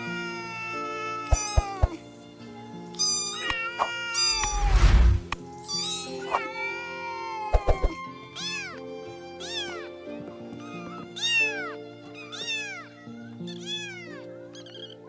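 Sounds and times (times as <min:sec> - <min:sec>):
background music: 0:00.0 - 0:15.0
cat meowing: 0:00.0 - 0:15.0.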